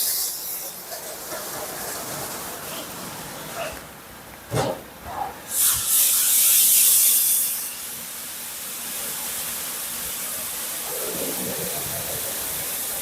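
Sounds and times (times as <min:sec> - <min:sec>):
car wash spray hissing: 0:05.5 - 0:10.9.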